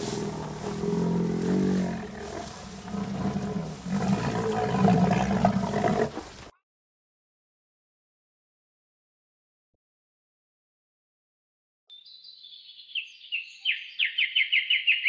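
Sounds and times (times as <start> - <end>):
deep calls of large animal: 0.0 - 6.5.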